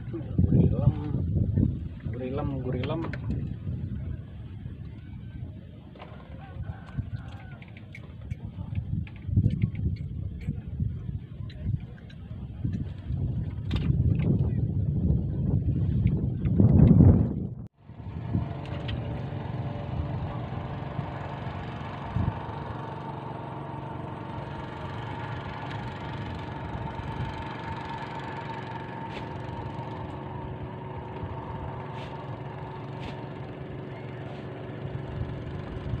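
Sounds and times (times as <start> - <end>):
engine idling: 17.8 - 36.0.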